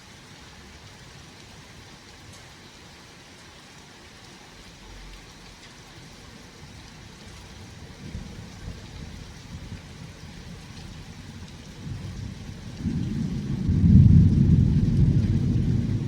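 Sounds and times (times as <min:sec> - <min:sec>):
steady rain: 0:00.0 - 0:16.0
thunder rumbling: 0:07.9 - 0:16.0.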